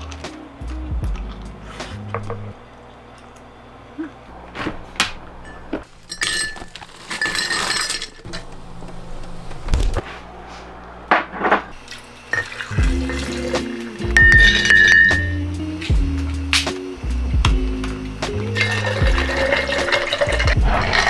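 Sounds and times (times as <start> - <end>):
glassware clinking: 5.4 - 8.4, 12.3 - 13.3, 14.2 - 15.4.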